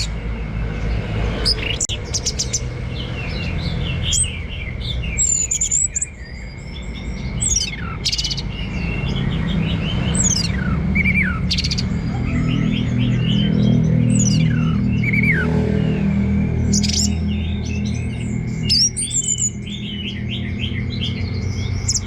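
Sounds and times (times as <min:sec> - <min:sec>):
thrush singing whistled notes: 0:00.0 - 0:22.0
sharp high bird chips: 0:01.5 - 0:16.0.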